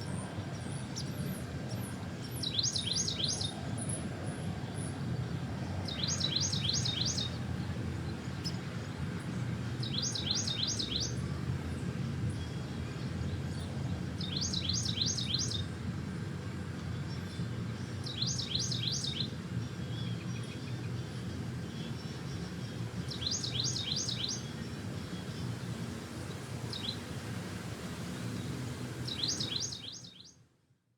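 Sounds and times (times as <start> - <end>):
songbird singing: 2.2 - 3.6, 5.8 - 8.7, 9.7 - 11.3, 12.3 - 15.7, 16.9 - 25.7, 26.4 - 27.2, 28.3 - 30.4.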